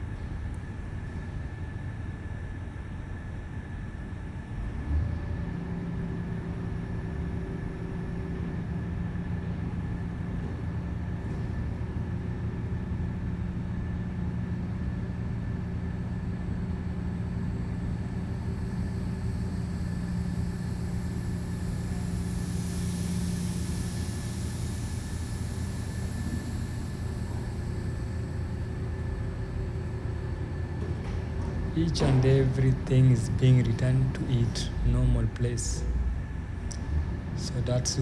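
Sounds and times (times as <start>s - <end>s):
diesel engine droning: 2.7s - 38.0s
hiss: 18.6s - 30.0s.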